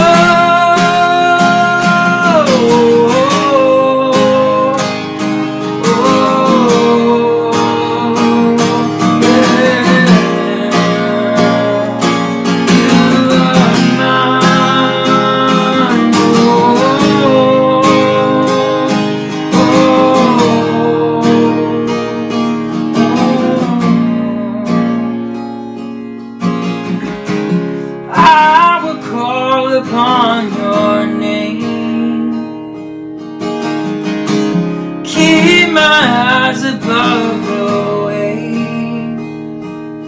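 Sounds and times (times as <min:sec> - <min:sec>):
sliding melody line: 0:00.0 - 0:24.8
acoustic guitar strummed: 0:00.0 - 0:40.0.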